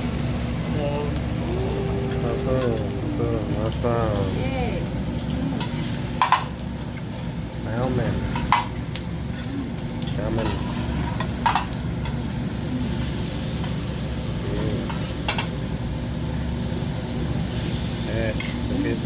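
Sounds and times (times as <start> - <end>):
food sizzling on a griddle: 0.0 - 19.0.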